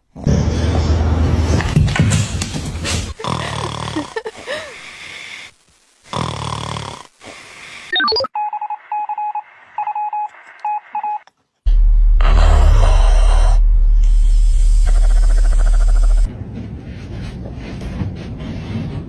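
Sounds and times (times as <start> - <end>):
dog snoring: 6.1 - 7.1
short electronic beeps: 7.9 - 11.2.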